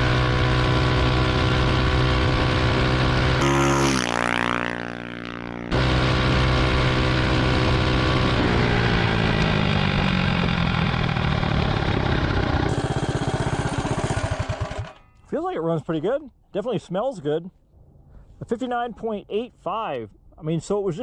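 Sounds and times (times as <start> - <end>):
mini bike engine revving high: 0.0 - 15.0.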